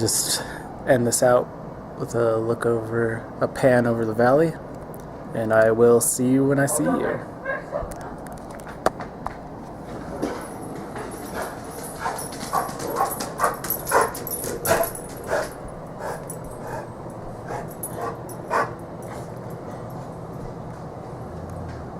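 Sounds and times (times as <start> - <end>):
dog barking: 6.7 - 7.9, 11.4 - 15.4, 17.5 - 18.8.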